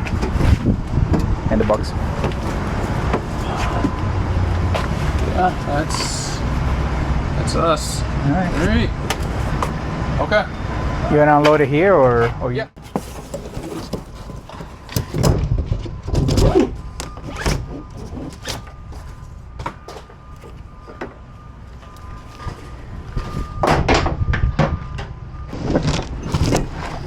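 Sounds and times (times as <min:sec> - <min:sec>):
cargo knocks and thunks: 0:00.0 - 0:06.4, 0:12.2 - 0:20.2, 0:23.2 - 0:27.0.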